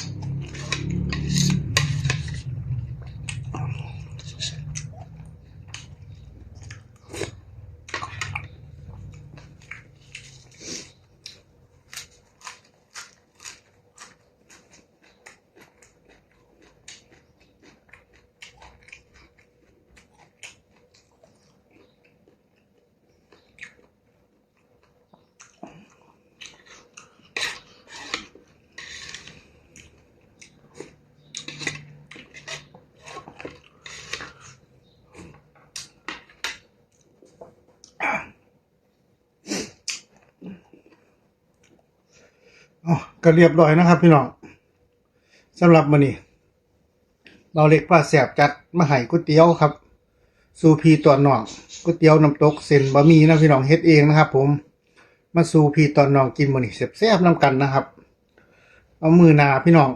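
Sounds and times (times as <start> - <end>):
person chewing: 0.0 - 38.0.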